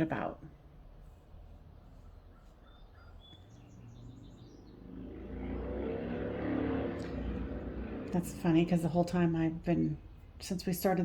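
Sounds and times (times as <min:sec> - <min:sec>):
bird chirps: 0:01.8 - 0:04.9
motorcycle engine: 0:03.5 - 0:09.1.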